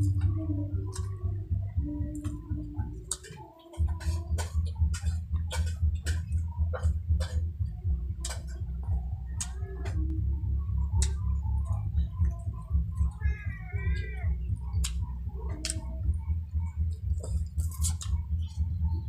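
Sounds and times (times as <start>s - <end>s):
wet chewing and lip-smacking: 0.0s - 1.4s, 2.0s - 10.1s, 10.9s - 18.8s
low hum: 0.0s - 19.0s
mouth clicks: 11.0s - 18.7s.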